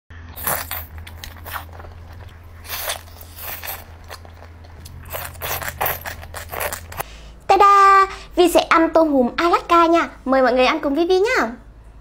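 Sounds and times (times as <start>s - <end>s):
low hum: 0.2s - 9.4s
biting and chewing: 0.3s - 7.1s.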